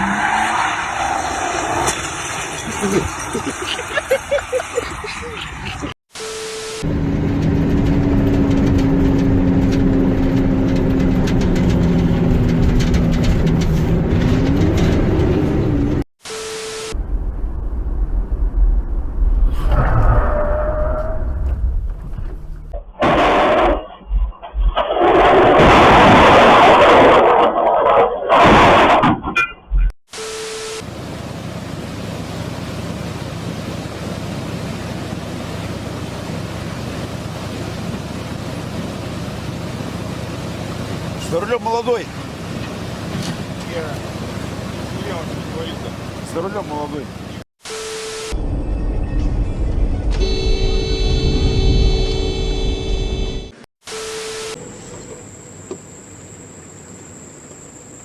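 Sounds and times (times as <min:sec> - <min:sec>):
vehicle engine and road noise: 0:00.0 - 0:25.7, 0:28.4 - 0:58.0
electronic tone: 0:06.2 - 0:07.0, 0:16.3 - 0:17.0, 0:29.4 - 0:30.9, 0:47.6 - 0:55.8.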